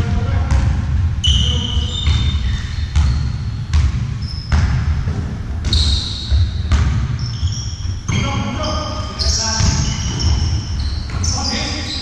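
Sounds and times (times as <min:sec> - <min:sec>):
ball bouncing on floor: 0:00.1 - 0:08.3, 0:09.5 - 0:11.3
shoe squeaks: 0:01.2 - 0:04.9, 0:05.6 - 0:12.0.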